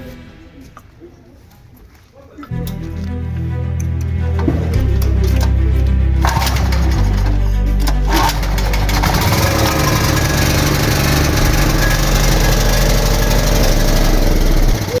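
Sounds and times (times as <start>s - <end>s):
small generator engine running: 4.8s - 15.0s.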